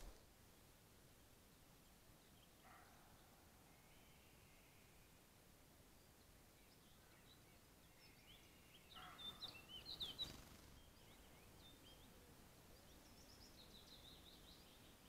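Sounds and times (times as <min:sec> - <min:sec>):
small birds chirping and trilling: 0:05.9 - 0:15.0.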